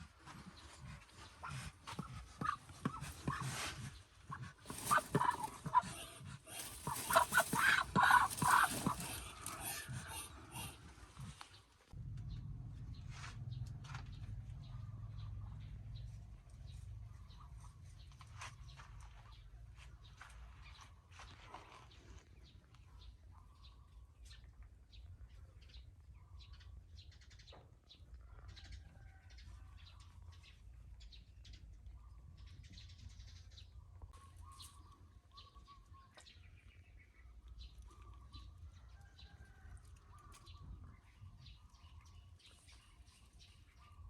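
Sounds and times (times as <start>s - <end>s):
soft bird calls: 0.5s - 11.6s
low steady rumble: 11.9s - 19.5s.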